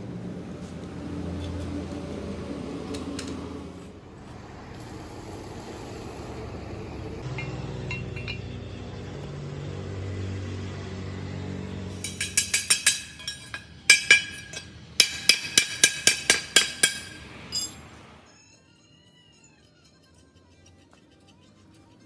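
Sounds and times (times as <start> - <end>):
sharp metallic clinks: 7.2 - 9.2, 11.8 - 17.9.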